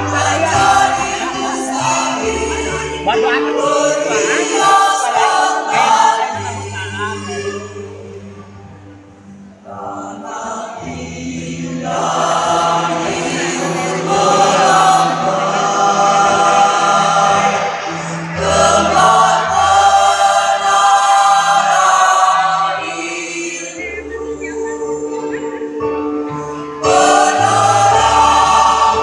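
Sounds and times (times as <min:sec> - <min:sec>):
choir singing sustained chords: 0:00.0 - 0:29.0.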